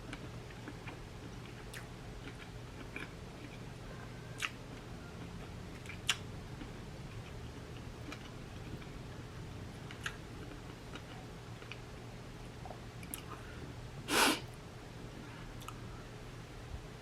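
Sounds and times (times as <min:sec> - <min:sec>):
mouth clicks and chewing: 0:00.1 - 0:03.6, 0:04.4 - 0:04.6, 0:05.2 - 0:08.9, 0:09.9 - 0:11.8, 0:15.6 - 0:15.8
slurp or sniff: 0:14.1 - 0:14.4.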